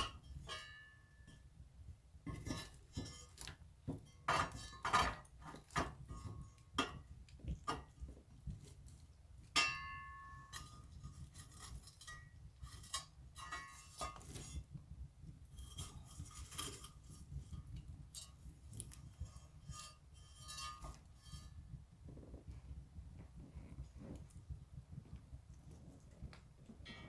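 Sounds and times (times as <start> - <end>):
fire crackling and popping: 10.5 - 27.0.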